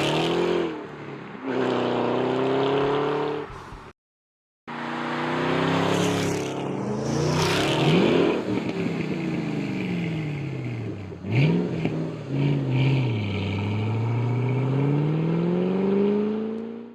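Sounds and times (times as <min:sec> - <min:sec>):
car engine revving: 0:04.7 - 0:16.9.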